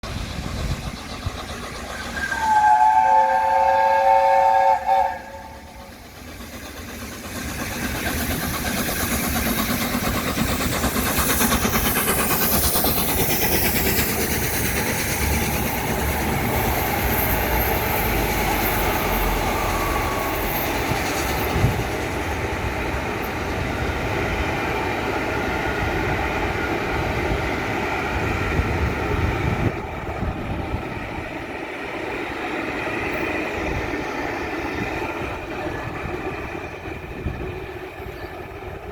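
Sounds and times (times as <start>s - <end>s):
steam train rumbling past: 0.0s - 38.9s
steam whistle chord: 2.2s - 5.8s.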